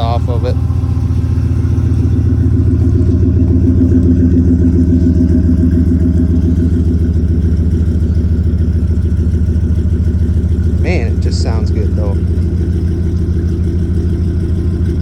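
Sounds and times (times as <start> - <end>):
engine idling with low burble: 0.0 - 15.0.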